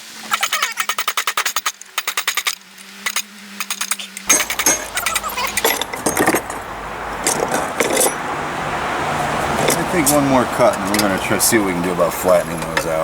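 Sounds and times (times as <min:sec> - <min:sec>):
metal clinks: 0:03.7 - 0:08.4.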